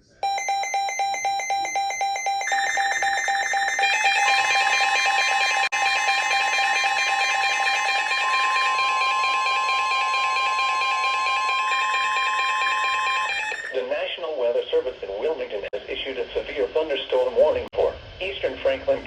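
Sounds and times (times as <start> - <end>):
rapid electronic beeps: 0.2 - 13.8
steady warning alarm tone: 0.2 - 13.9.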